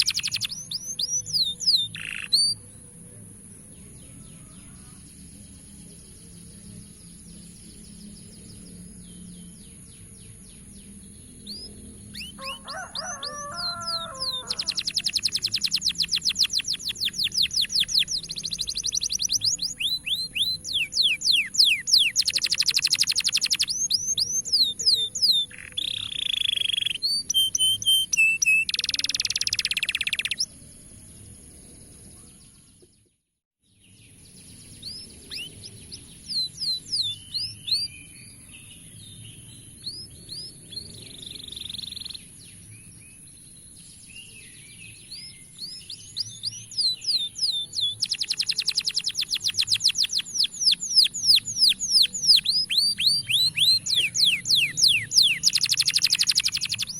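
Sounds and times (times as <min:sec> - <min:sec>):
canary trilling and chirping: 0:00.0 - 0:02.6, 0:11.5 - 0:30.5, 0:35.2 - 0:35.6, 0:46.2 - 0:56.9.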